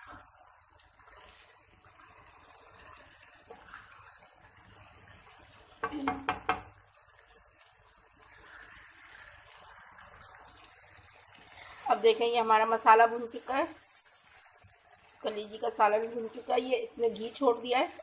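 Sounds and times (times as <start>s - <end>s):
spoon stirring and scraping pot: 0.0s - 5.2s
curry sizzling in a pot: 0.0s - 18.0s.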